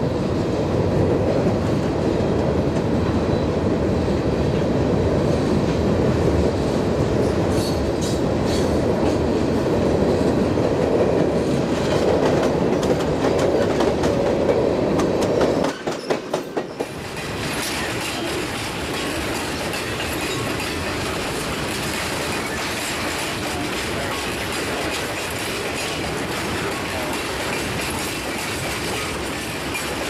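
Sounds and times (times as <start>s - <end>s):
freight train rumbling past: 0.0s - 30.0s
wheels clattering over rail joints: 11.6s - 30.0s.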